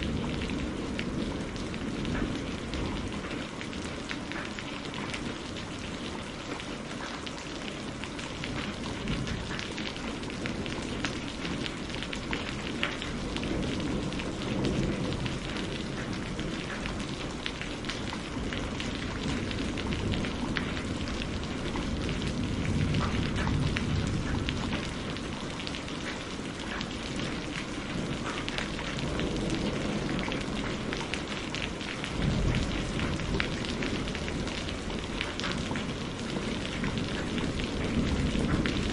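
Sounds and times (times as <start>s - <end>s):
thunder rumbling: 0.0s - 6.8s, 7.6s - 38.9s
steady rain: 0.0s - 38.9s.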